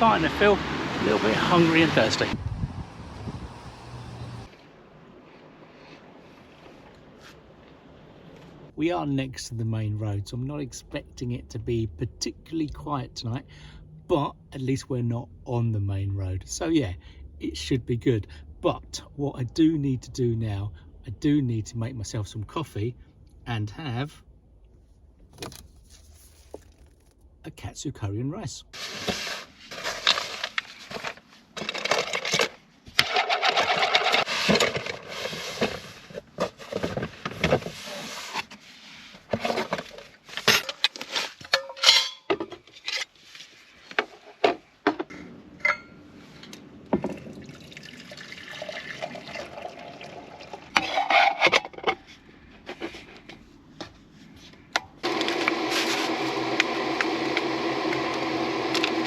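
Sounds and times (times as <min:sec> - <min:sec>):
containers clicking and rustling: 0:28.9 - 0:37.7.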